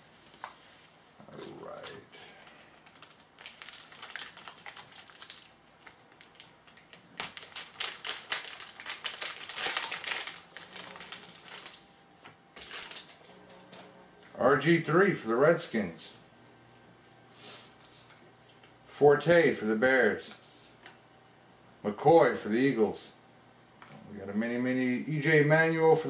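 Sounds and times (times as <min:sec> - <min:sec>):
wrapper tearing and crinkling: 0:02.7 - 0:11.8, 0:12.6 - 0:13.2.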